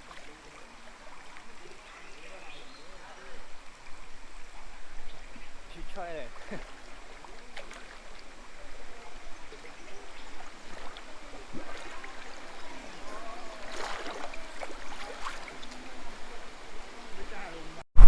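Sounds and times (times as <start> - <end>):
faint voices: 0.0 - 17.8
water trickling in a pool: 0.0 - 17.8.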